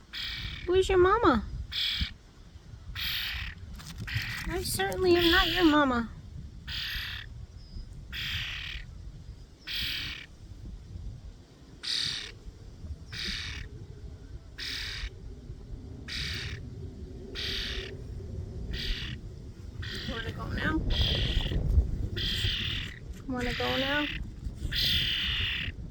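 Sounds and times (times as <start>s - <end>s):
bird giving short calls: 0.1s - 0.7s, 1.7s - 2.2s, 3.0s - 5.8s, 8.1s - 8.9s, 9.6s - 10.3s, 11.8s - 12.4s, 13.1s - 13.7s, 14.6s - 15.1s, 16.1s - 16.6s, 17.4s - 17.9s, 18.7s - 19.2s, 19.8s - 21.6s, 22.2s - 25.8s.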